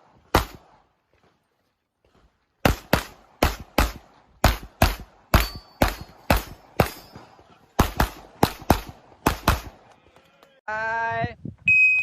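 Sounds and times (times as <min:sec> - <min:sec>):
handgun shots: 0:02.6 - 0:07.2, 0:07.8 - 0:09.8.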